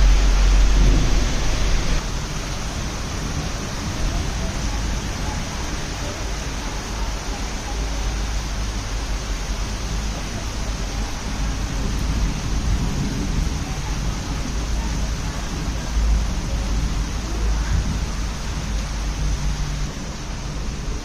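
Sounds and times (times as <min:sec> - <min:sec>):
low rumble: 0:00.0 - 0:05.5
rain falling: 0:00.0 - 0:21.0.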